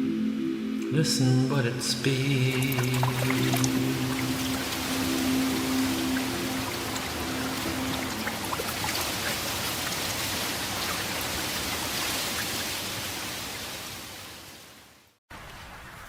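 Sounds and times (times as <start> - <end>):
held music notes: 0.0 - 9.5
running water rushing: 2.2 - 15.8
water drips and splashes: 2.5 - 14.7.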